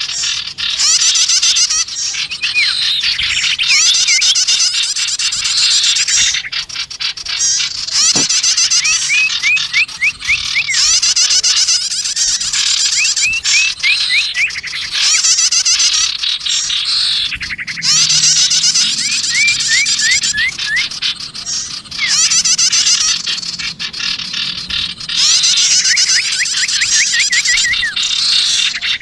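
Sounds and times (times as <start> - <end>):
rapid clicking bird trills: 0.0 - 29.0
songbirds chattering: 0.0 - 29.0
quick upslurred whistled notes: 7.9 - 11.7, 12.4 - 15.2, 19.0 - 20.9, 25.2 - 28.1.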